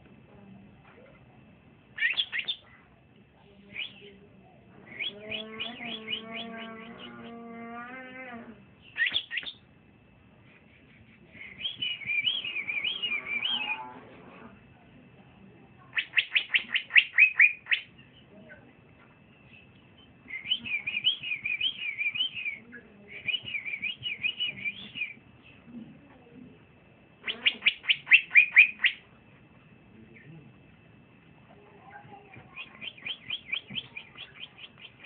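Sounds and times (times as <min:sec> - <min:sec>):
bird singing warbled phrases: 0:02.0 - 0:02.8, 0:03.7 - 0:04.1, 0:04.9 - 0:07.3, 0:08.8 - 0:09.7, 0:11.4 - 0:13.8, 0:15.9 - 0:18.3, 0:19.5 - 0:25.2, 0:27.2 - 0:29.1, 0:32.5 - 0:35.0.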